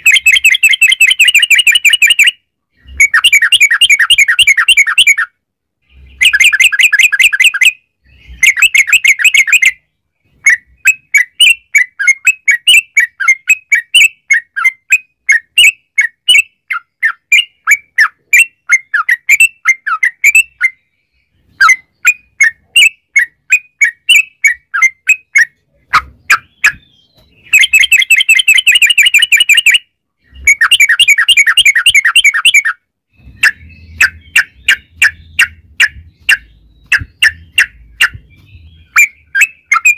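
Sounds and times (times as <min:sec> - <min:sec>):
bird trilled chatter: 0:00.0 - 0:02.3, 0:21.4 - 0:39.9
bird chirps: 0:00.0 - 0:39.9.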